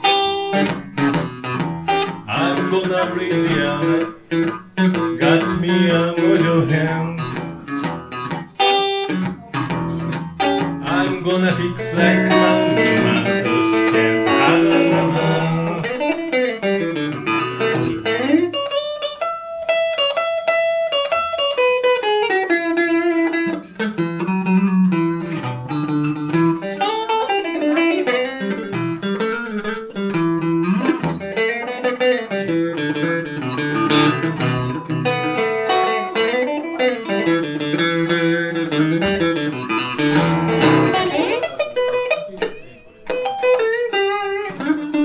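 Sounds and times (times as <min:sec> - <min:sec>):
electric guitar blues playing: 0:00.0 - 0:45.0
bass line: 0:10.8 - 0:16.0.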